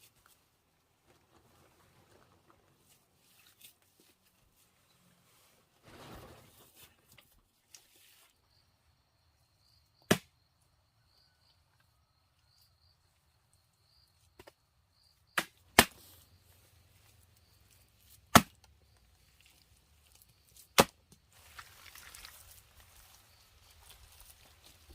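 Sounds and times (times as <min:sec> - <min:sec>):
chopping strikes into wood: 0:10.1 - 0:10.3, 0:15.4 - 0:16.0, 0:18.3 - 0:18.6, 0:20.8 - 0:21.0.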